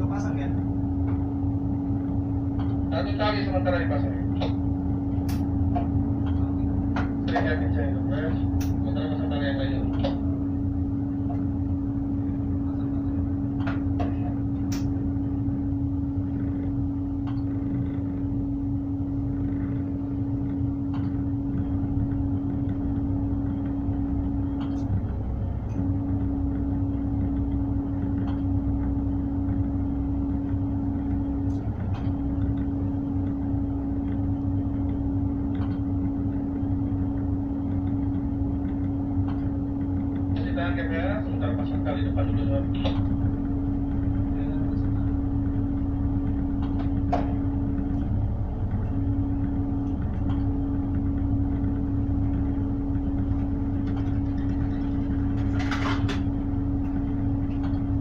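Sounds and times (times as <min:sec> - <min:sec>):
diesel engine drone: 0:00.0 - 0:58.0
steady engine whine: 0:00.0 - 0:58.0
faint clicks and knocks: 0:04.3 - 0:07.8.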